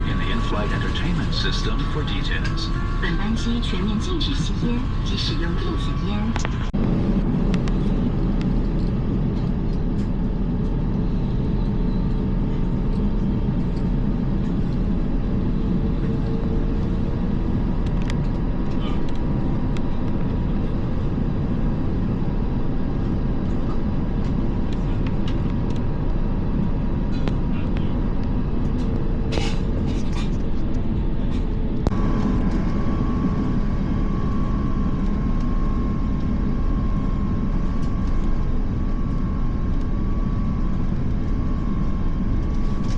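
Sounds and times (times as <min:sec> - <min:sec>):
faint high whine: 0:00.0 - 0:06.7, 0:31.8 - 0:42.9
airplane cabin rumble: 0:00.0 - 0:42.9.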